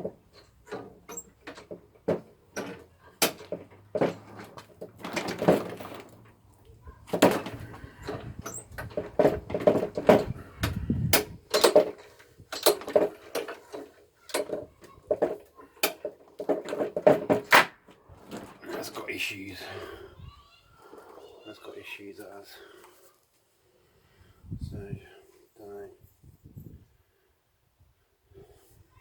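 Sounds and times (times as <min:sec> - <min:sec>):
clunks and rattles of parts: 0:00.0 - 0:19.0.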